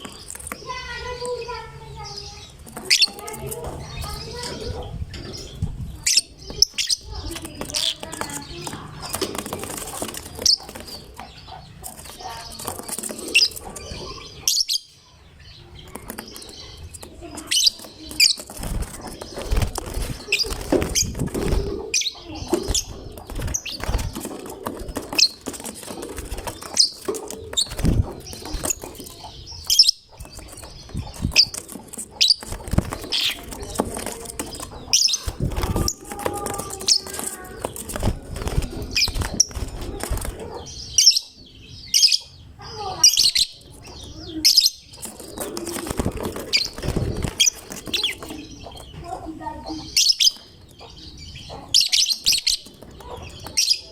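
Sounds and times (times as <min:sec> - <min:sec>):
wing flapping: 0:02.6 - 0:14.3, 0:15.8 - 0:40.8, 0:44.8 - 0:49.6
bird chirping high calls: 0:10.0 - 0:53.9.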